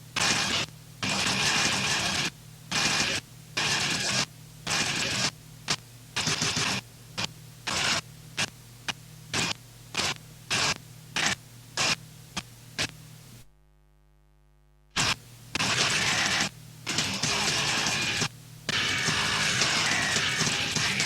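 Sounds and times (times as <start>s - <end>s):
steady hum: 5.3s - 21.0s
faint buzzing tone: 8.6s - 16.9s
harsh noise bursts: 15.0s - 21.0s.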